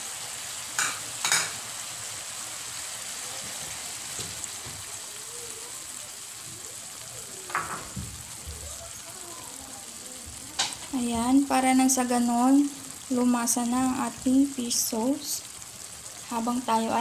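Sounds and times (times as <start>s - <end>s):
chicken sizzling in oil: 0.0s - 17.0s.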